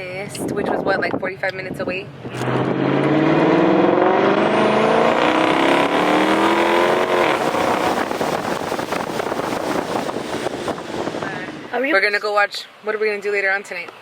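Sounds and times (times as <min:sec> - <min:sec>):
car engine accelerating: 0:02.1 - 0:11.8.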